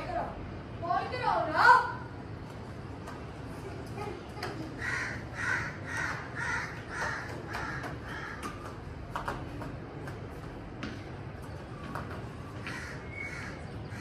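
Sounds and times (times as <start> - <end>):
bird harsh calls: 4.6 - 8.8, 12.6 - 14.0.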